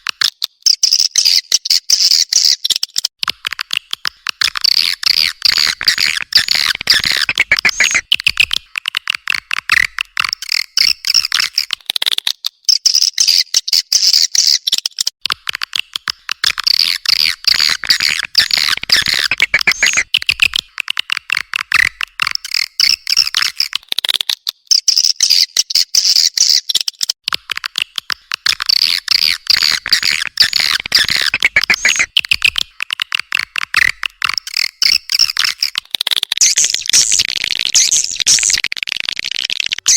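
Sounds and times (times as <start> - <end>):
swiftlets twittering: 5.2 - 8.0, 17.1 - 20.1, 28.7 - 32.6, 33.8 - 39.9.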